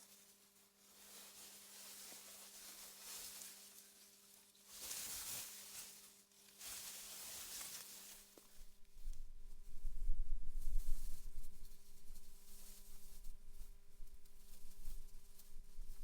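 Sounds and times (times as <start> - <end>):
wind blowing through grass: 8.5 - 16.0.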